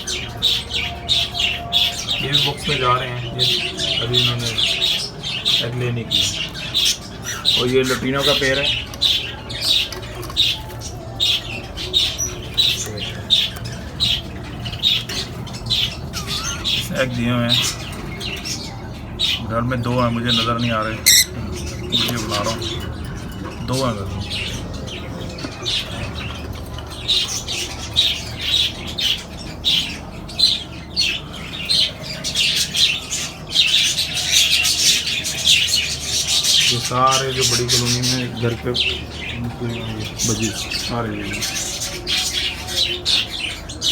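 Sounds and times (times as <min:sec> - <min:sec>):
parrots squawking: 0:00.0 - 0:43.9.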